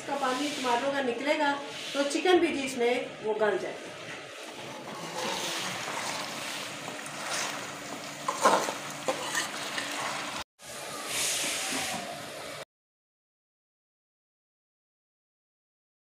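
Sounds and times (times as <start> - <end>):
food sizzling while stirred: 0.0 - 2.3, 4.2 - 10.5.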